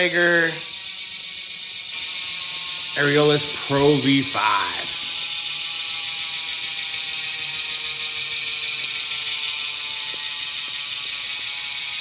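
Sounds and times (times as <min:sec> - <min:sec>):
freewheel hub ratchet buzzing: 0:00.0 - 0:12.0.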